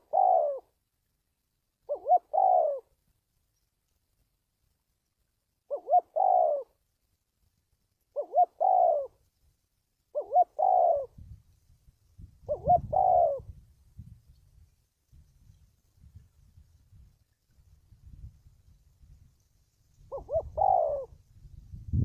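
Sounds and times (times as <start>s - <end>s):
dove cooing: 0.0s - 0.8s, 1.9s - 3.0s, 5.7s - 6.8s, 8.1s - 9.2s, 10.1s - 11.4s, 12.4s - 13.6s, 20.0s - 21.2s.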